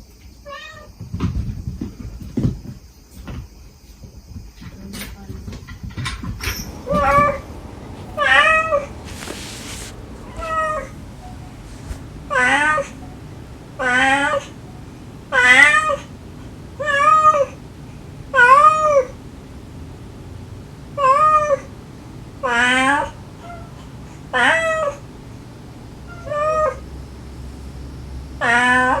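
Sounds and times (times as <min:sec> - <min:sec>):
burst of noise: 0:06.4 - 0:20.8
kittens meowing: 0:06.5 - 0:16.1.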